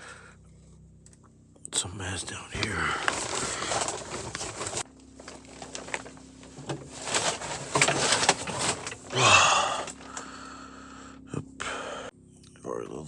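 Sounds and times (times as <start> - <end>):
loud breathy sound: 0.0 - 0.4, 9.1 - 12.1
steady low hum: 0.0 - 13.0
rustling and scraping of pipes: 2.6 - 10.3.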